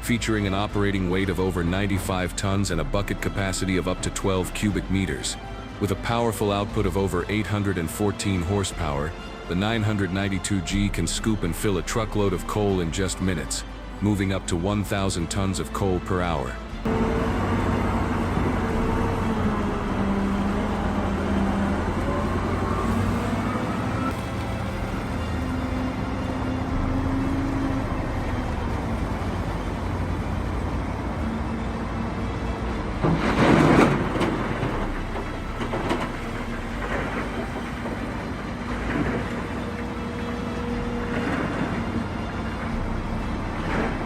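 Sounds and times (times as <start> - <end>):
diesel engine running: 16.8 - 44.0.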